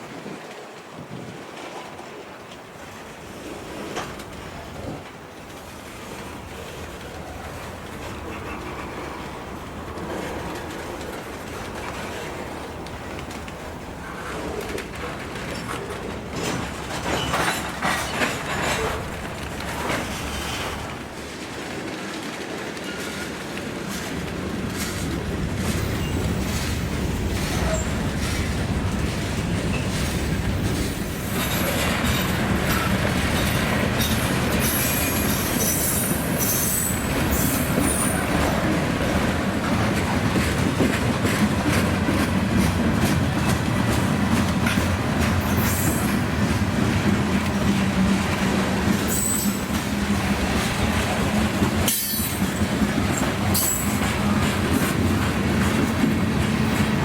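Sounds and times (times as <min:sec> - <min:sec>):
wheels clicking over rail joints: 0:00.3 - 0:57.0
train flange squeals: 0:14.0 - 0:21.1, 0:24.8 - 0:28.6, 0:29.3 - 0:39.3, 0:43.0 - 0:46.6, 0:47.5 - 0:55.0.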